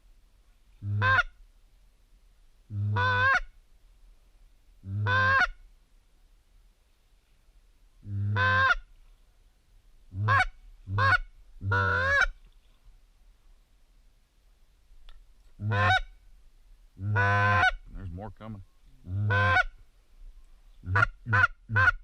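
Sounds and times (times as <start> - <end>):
waterfowl honking: 0.8 - 1.3, 2.8 - 3.5, 4.9 - 5.6, 8.2 - 8.8, 10.2 - 12.4, 15.6 - 16.1, 17.0 - 17.8, 19.1 - 19.8, 20.8 - 22.0.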